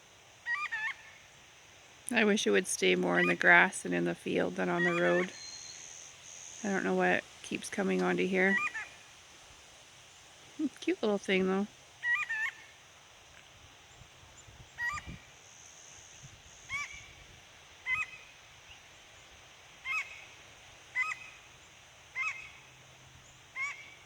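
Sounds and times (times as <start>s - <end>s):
bird calling: 0.4s - 1.4s, 2.1s - 9.1s, 10.6s - 12.8s, 14.7s - 15.3s, 16.6s - 17.2s, 17.8s - 18.8s, 19.8s - 24.0s.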